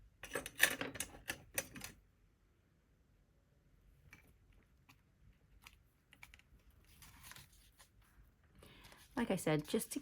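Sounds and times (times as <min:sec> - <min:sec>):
paper rustling: 0:06.2 - 0:09.8.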